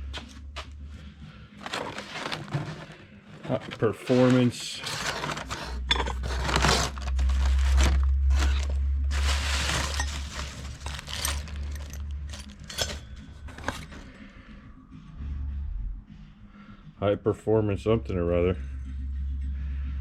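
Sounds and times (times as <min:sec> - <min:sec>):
low steady hum: 0:00.8 - 0:16.2
rustling: 0:01.6 - 0:14.2.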